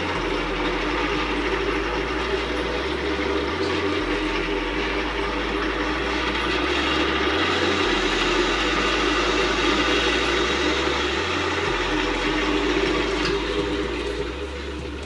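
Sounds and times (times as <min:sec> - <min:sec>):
band saw motor and blade hum: 0:00.0 - 0:15.0.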